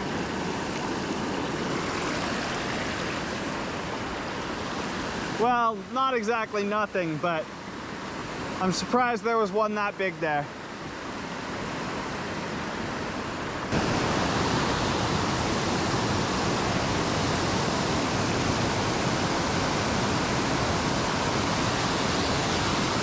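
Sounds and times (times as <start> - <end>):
water rushing down small waterfall: 0.0 - 5.9, 13.7 - 23.0.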